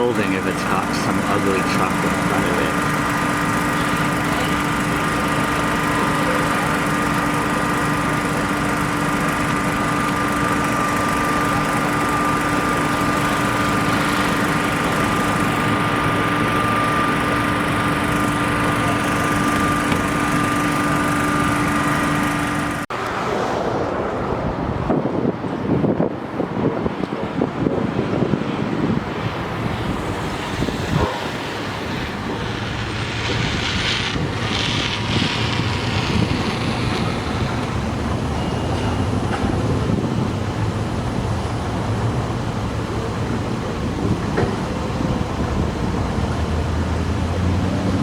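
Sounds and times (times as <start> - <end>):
engine droning hum: 0.0 - 48.0
gusty noise: 22.9 - 40.7.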